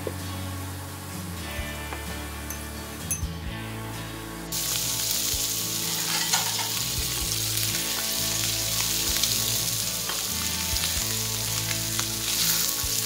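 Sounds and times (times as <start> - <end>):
eggs sizzling in hot oil: 4.5 - 13.0.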